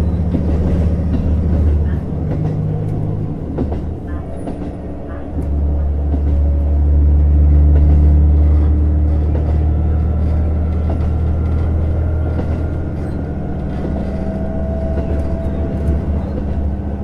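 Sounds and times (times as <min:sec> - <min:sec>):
train rail running noise: 0:00.0 - 0:17.0
diesel engine drone: 0:05.1 - 0:17.0.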